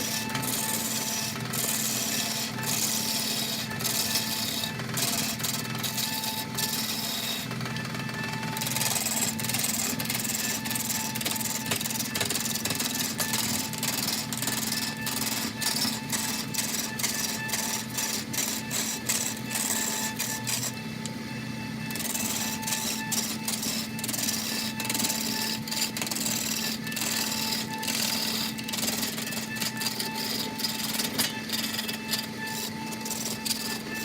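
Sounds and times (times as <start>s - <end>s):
woodworking machine humming: 0.0s - 34.0s
cutting tool clicking on wood: 21.9s - 34.0s.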